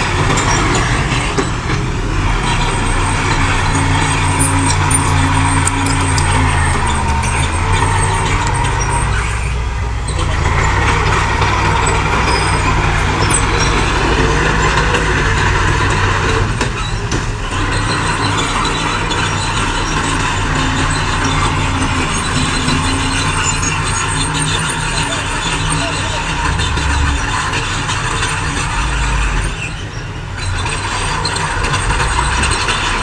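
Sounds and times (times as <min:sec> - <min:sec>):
mechanical clatter: 0:00.0 - 0:09.5
diesel machinery engines under load: 0:00.0 - 0:33.0.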